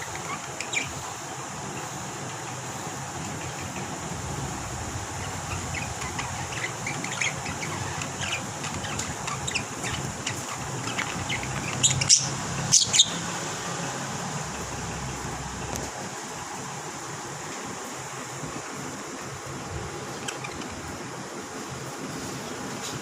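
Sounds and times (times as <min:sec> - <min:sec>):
lovebirds chirping: 0:00.0 - 0:01.9, 0:02.8 - 0:15.8, 0:19.9 - 0:21.2
shrill bird calls: 0:05.3 - 0:13.3.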